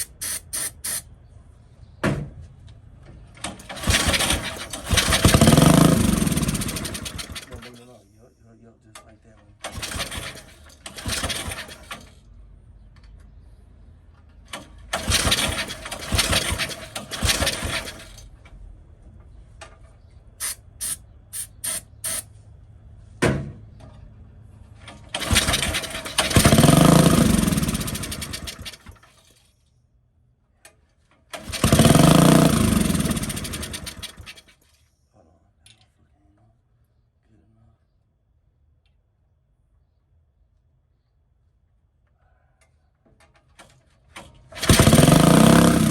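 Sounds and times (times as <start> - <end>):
short clicks: 0.0 - 1.1
go-kart engine revving: 3.4 - 7.9, 9.6 - 12.2, 14.5 - 18.4, 24.9 - 29.1, 31.3 - 34.5, 44.4 - 45.9.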